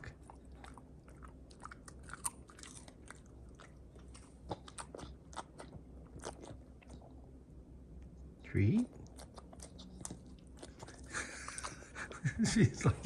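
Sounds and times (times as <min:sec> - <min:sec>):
dog chewing crunchy treat: 0:00.0 - 0:07.2, 0:08.8 - 0:12.0.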